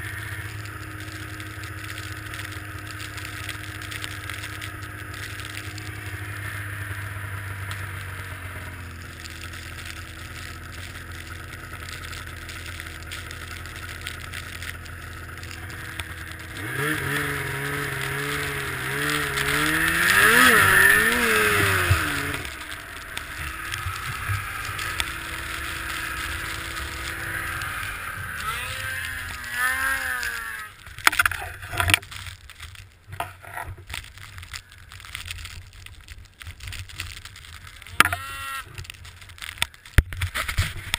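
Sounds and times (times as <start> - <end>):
snowmobile engines revving: 0.0 - 31.8, 37.9 - 38.9.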